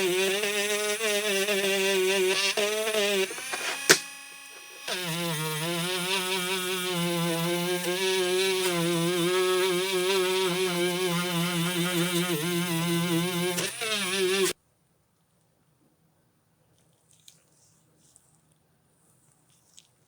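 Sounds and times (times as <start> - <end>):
power tool electric motor running: 0.0 - 14.6.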